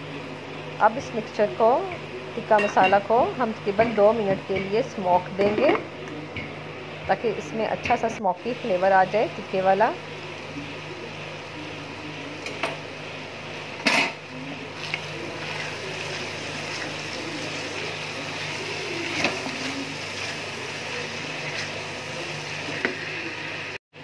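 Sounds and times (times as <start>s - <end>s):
food frying in a pot: 7.2s - 23.8s.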